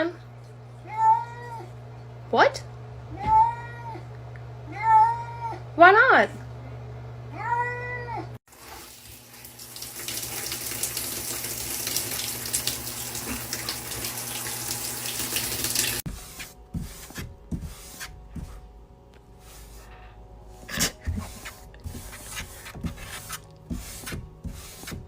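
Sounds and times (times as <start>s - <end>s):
water running from a tap: 8.5s - 16.0s
rubbing sounds: 15.8s - 25.0s.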